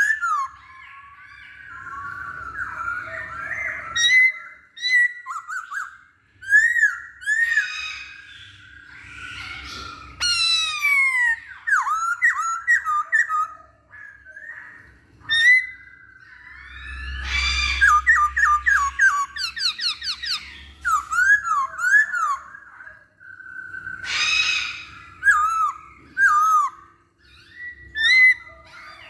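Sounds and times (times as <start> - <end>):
laughingthrush singing: 8.8 - 23.2.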